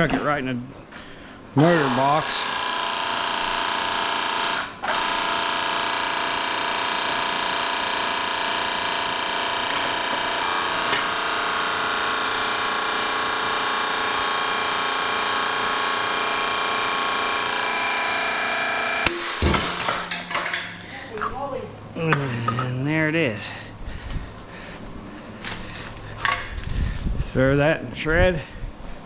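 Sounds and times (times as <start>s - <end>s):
electric power tool running: 1.6s - 20.4s.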